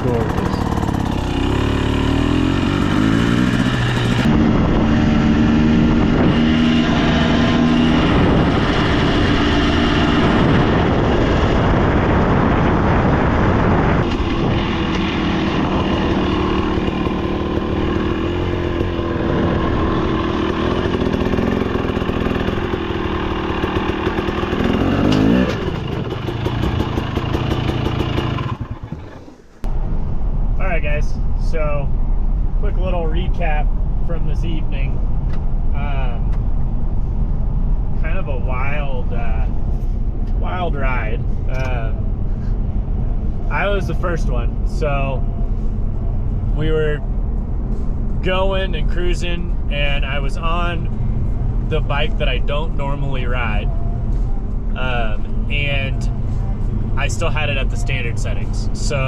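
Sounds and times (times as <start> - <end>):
dirt bike engine revving: 0.0 - 29.6.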